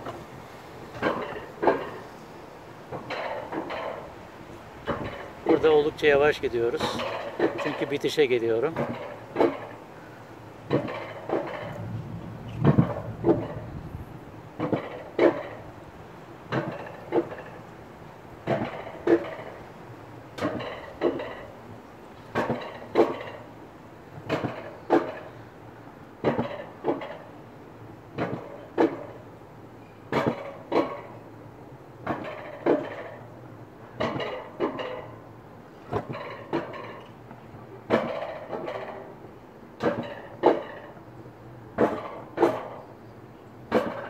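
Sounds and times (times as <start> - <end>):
sled rolling on metal track: 10.6 - 15.8
rhythmic double clunk: 10.7 - 14.0.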